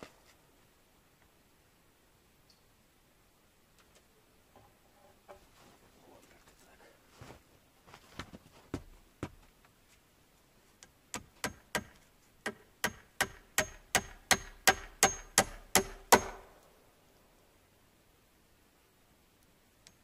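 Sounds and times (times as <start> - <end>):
hammer nailing into wood: 11.1 - 16.5.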